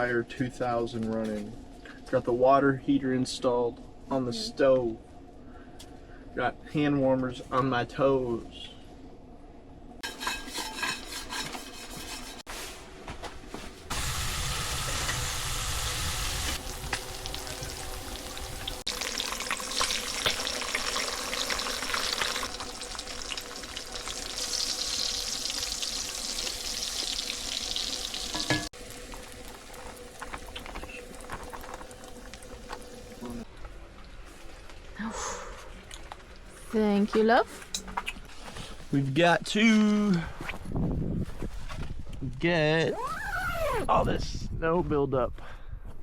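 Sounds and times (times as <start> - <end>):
food sizzling in a pan: 13.9 - 33.5.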